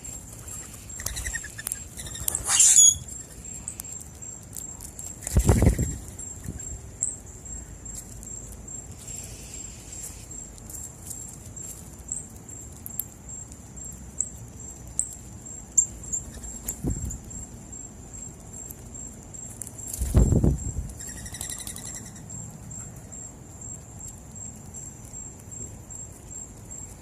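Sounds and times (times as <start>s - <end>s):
birds pecking clicks: 0.0s - 6.6s, 18.3s - 22.2s
short high bird chirps: 2.0s - 3.0s.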